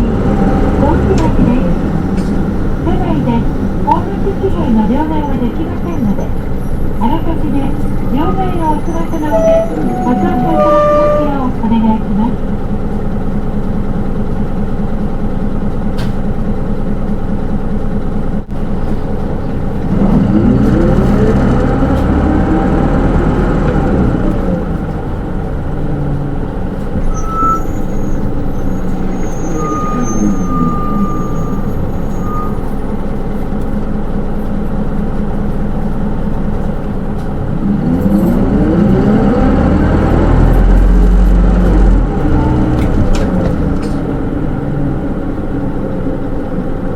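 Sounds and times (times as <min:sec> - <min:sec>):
bus diesel engine: 0:00.0 - 0:46.9.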